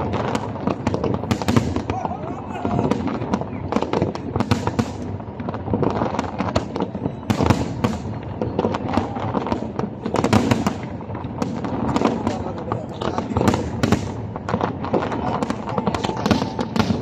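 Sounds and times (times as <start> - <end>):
fireworks bursts and crackle: 0.0 - 17.0.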